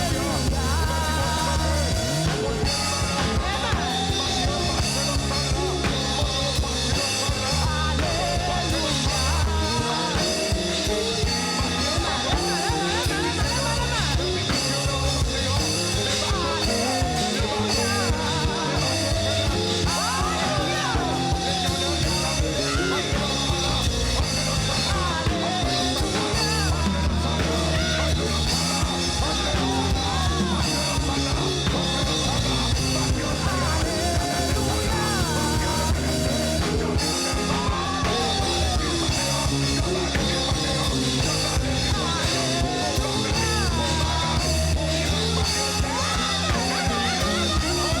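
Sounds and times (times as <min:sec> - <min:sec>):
band playing: 0:00.0 - 0:48.0
bass: 0:00.0 - 0:48.0
drum kit: 0:00.0 - 0:48.0
person singing: 0:00.0 - 0:48.0.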